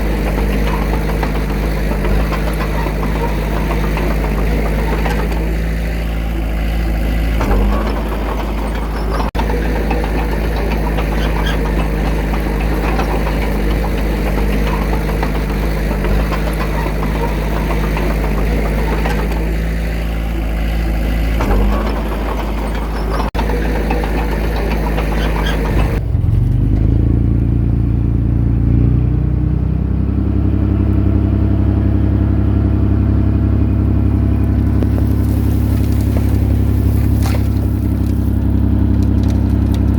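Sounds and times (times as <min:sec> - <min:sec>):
mechanical clatter: 0:00.0 - 0:27.2
diesel engine running: 0:00.0 - 0:39.9.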